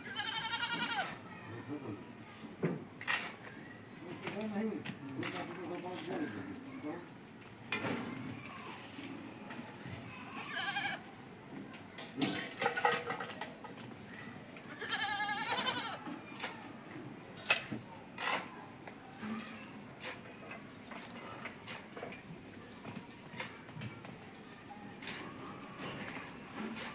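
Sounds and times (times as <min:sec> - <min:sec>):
goats bleating: 0:00.1 - 0:01.1, 0:10.4 - 0:11.0, 0:14.7 - 0:16.0.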